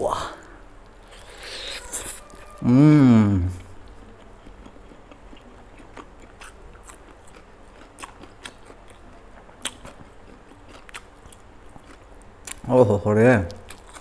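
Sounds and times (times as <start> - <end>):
person chewing chicken: 1.0 - 2.9, 3.6 - 12.6, 13.6 - 14.0.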